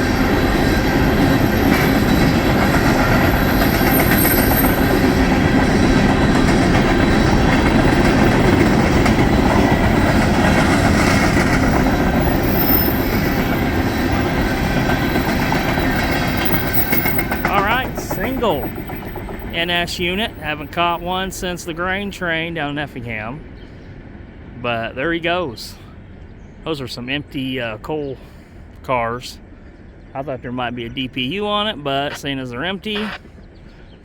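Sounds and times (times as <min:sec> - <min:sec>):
steel wheels rolling on rail: 0:00.0 - 0:24.5.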